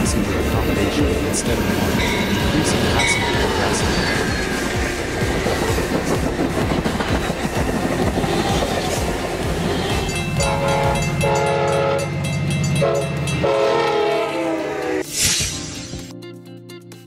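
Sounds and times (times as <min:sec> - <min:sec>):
train wheels clattering: 0:01.8 - 0:10.2
locomotive horn blasts: 0:10.4 - 0:15.1.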